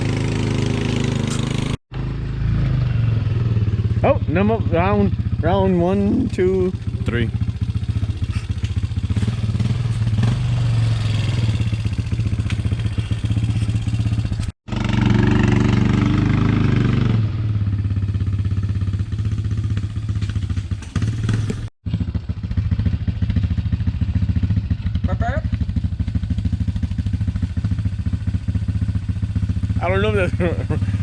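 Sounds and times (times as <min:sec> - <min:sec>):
vehicle engine revving: 0:00.0 - 0:21.7.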